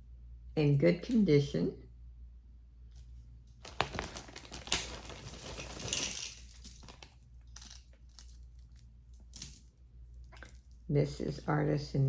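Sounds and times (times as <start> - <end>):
jewelry clicking and clinking: 3.7 - 10.8.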